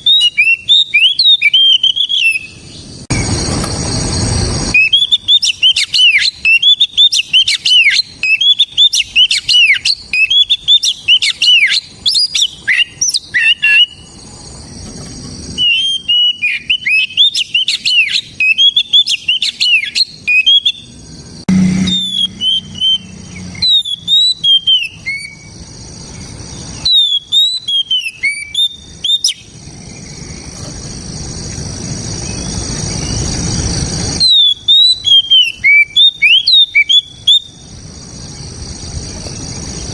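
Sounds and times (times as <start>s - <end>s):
songbird chirping and whistling: 0.0s - 3.3s, 4.7s - 14.4s, 15.6s - 30.6s, 32.2s - 39.9s.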